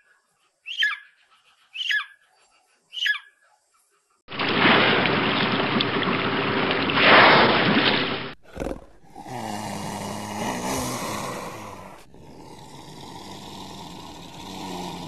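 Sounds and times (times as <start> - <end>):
water splashing and rushing: 4.3 - 8.4.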